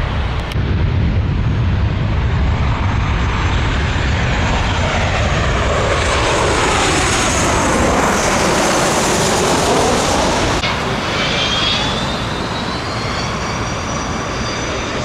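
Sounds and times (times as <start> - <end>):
high engine whine: 0.0 - 15.0
jet airliner passing overhead: 0.0 - 15.0.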